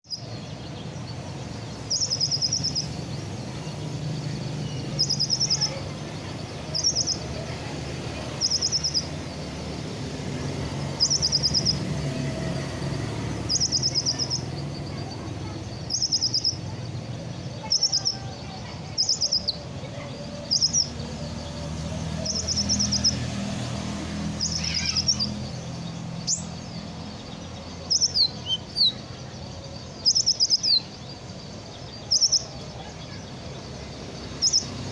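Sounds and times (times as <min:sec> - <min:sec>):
bird singing high rapid trills: 0:00.0 - 0:34.9.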